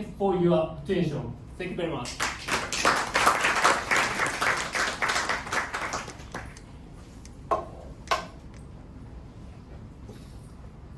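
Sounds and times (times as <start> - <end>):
applause: 2.0 - 6.6.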